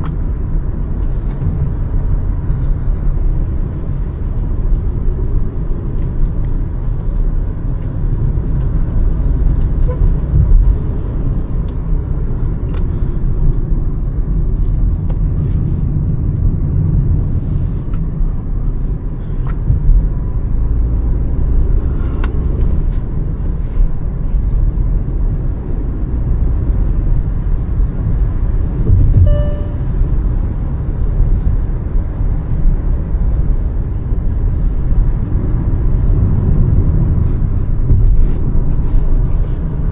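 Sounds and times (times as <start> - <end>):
car engine rumble: 0.0 - 39.9
road noise: 0.0 - 39.9
brief pitched tone: 29.1 - 30.0.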